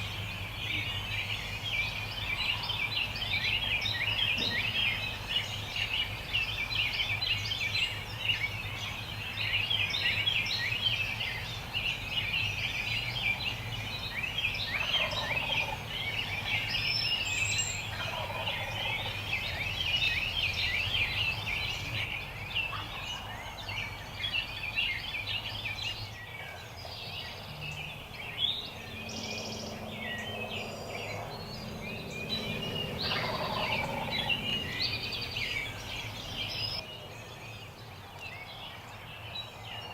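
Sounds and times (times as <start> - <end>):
turkey gobbling: 14.8 - 15.8, 17.9 - 19.1, 33.0 - 34.3.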